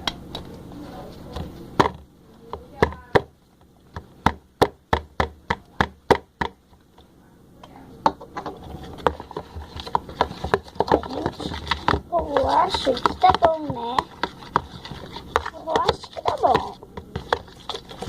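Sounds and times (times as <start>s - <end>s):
utensil tapping against a bowl: 9.0s - 17.8s.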